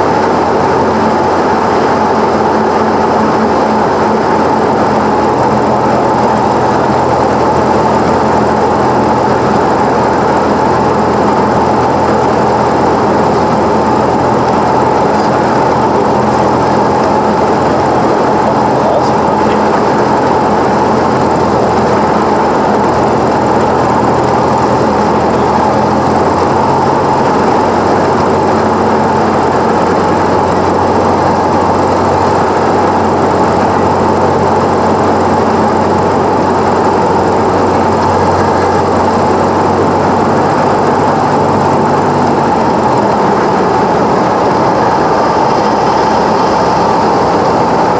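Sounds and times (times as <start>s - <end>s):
propeller plane engine droning: 0.0s - 47.9s.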